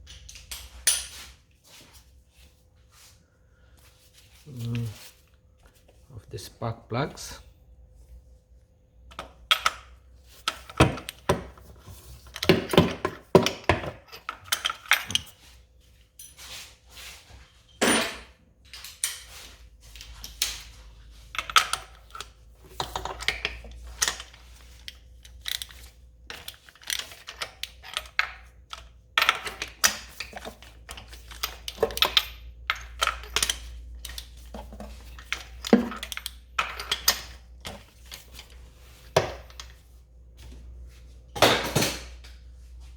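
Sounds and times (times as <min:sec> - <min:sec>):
metal tools clinking: 0:17.7 - 0:19.4, 0:21.3 - 0:38.6.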